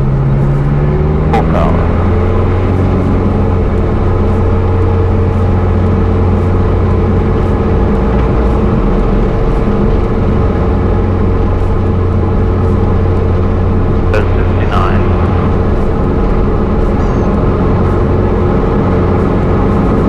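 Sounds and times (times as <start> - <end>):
propeller plane engine drone: 0.0 - 20.0.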